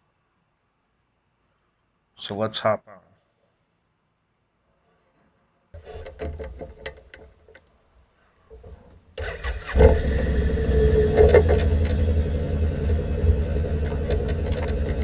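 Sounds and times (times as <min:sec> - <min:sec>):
atv engine starting and running: 0:05.8 - 0:07.2, 0:08.5 - 0:15.0
clicks and knocks: 0:05.8 - 0:07.7, 0:11.1 - 0:15.0.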